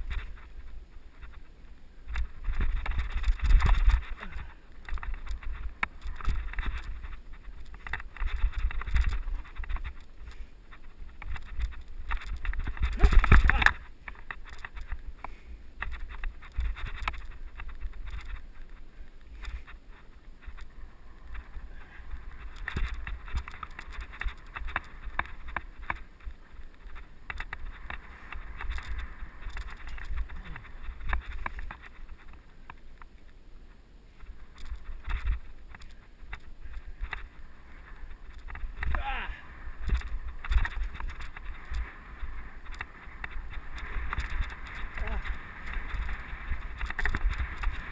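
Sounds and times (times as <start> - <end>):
bike clicks and rattles: 0.0 - 33.4, 34.1 - 47.9
bike tyres crunching on dirt: 0.0 - 47.9
wind buffeting microphone: 2.0 - 15.1, 34.3 - 47.9.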